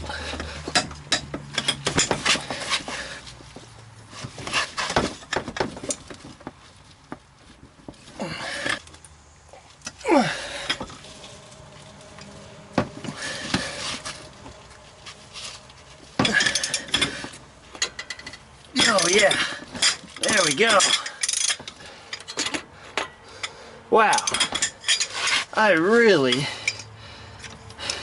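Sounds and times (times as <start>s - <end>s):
metal hand tools clinking: 16.2s - 17.2s, 17.8s - 25.5s, 26.2s - 27.0s.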